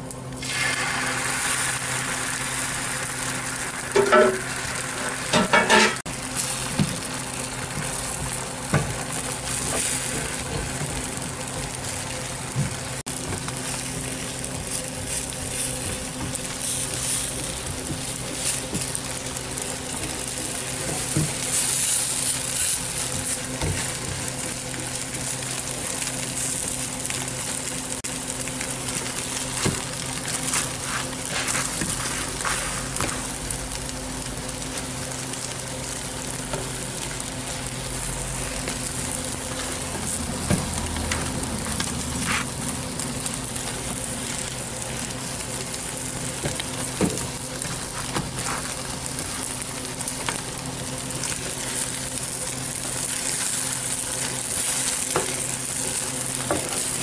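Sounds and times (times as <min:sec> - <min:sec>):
food sizzling on griddle: 0:00.0 - 0:57.0
scrapes and taps on griddle: 0:04.0 - 0:04.4, 0:05.3 - 0:06.0, 0:30.5 - 0:33.3, 0:40.5 - 0:42.6.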